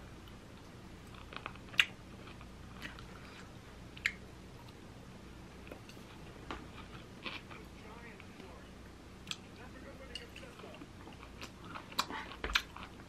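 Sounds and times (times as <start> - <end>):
person chewing food: 0.1 - 4.8, 5.6 - 8.3, 10.3 - 13.0.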